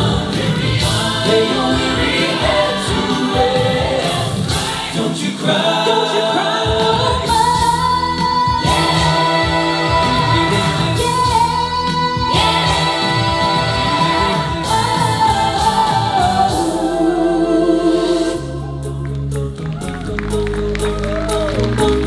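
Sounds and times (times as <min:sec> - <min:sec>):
rock music with low beat: 0:00.0 - 0:05.2
vocal group singing: 0:00.0 - 0:19.3.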